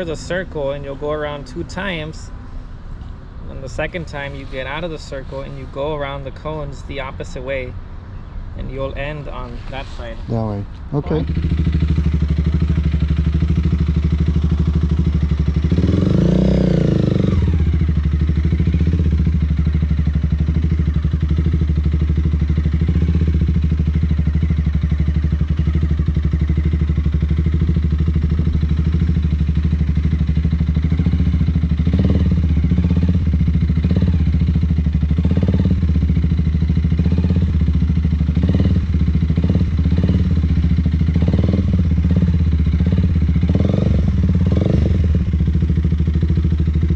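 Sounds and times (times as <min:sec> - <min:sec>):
motorcycle engine revving: 0:10.6 - 0:46.9.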